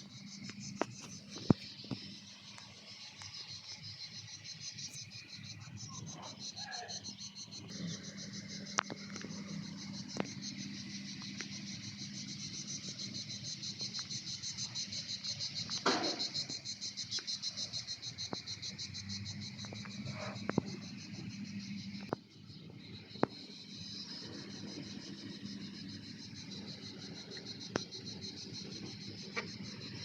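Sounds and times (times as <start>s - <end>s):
insects chirping: 0.0s - 30.0s.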